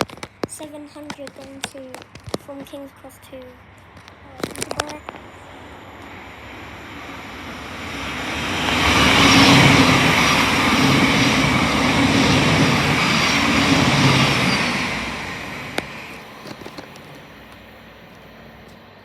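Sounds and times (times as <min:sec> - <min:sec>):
wheel and rail noise: 0:00.0 - 0:19.0
electric train passing: 0:02.8 - 0:19.0.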